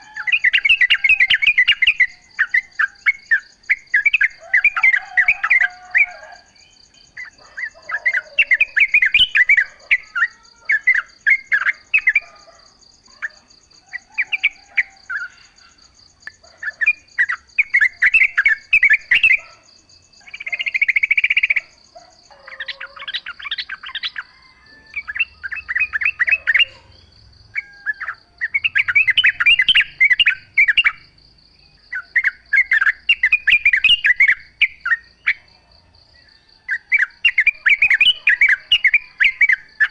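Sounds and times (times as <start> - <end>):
bulbuls singing: 0.0 - 39.9.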